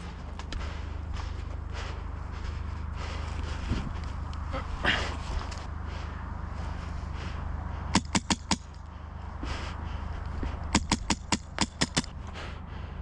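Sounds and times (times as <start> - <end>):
airsoft rifle shots: 7.9 - 8.8, 10.7 - 12.1.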